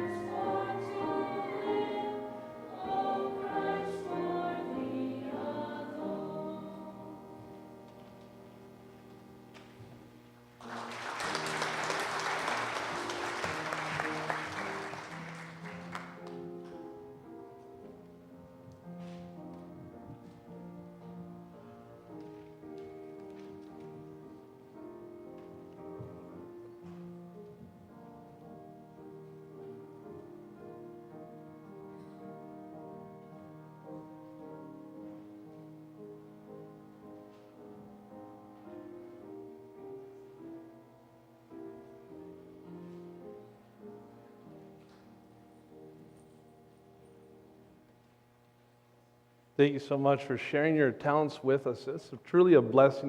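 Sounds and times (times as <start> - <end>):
slow piano music: 0.0 - 48.1
congregation applauding: 10.6 - 16.5.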